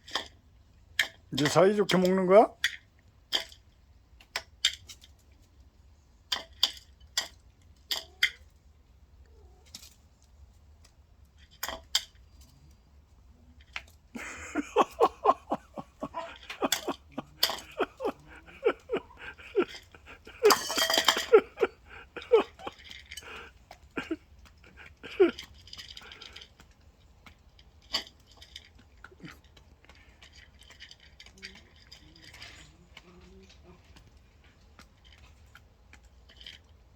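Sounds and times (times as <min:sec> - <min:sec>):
chicken pecking on a dish: 0:13.6 - 0:36.9.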